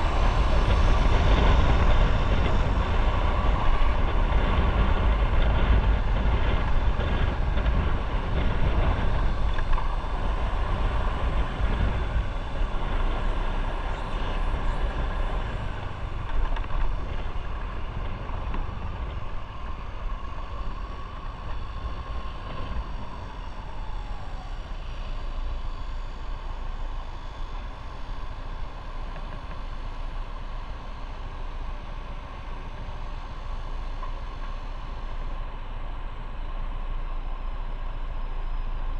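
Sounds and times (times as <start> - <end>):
motorcycle engine running: 0.0 - 23.4
wind and road noise: 0.0 - 38.9
faint tone dropping in pitch: 11.9 - 16.5.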